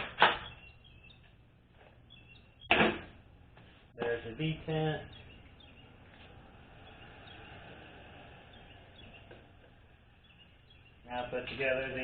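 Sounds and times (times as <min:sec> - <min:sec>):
low hum: 0:00.4 - 0:11.1.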